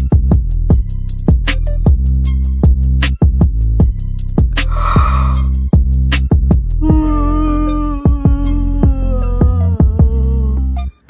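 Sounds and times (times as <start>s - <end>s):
electronic music with thumping beat: 0.0s - 5.2s, 8.1s - 10.3s.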